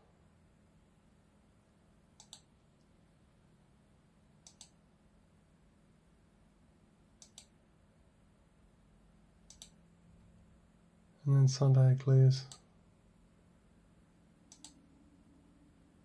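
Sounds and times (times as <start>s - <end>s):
faint low hum: 0.0s - 16.0s
computer mouse clicking: 2.2s - 2.5s, 4.4s - 4.8s, 7.2s - 7.6s, 9.5s - 9.8s, 14.5s - 14.8s.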